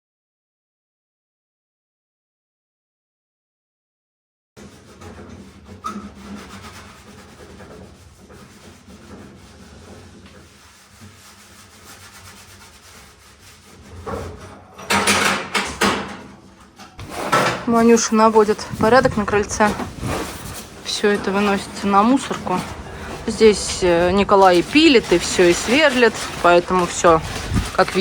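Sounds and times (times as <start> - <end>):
wood rubbing and scraping: 4.6 - 15.2, 16.6 - 28.0
loud clattering knocks: 14.0 - 16.3.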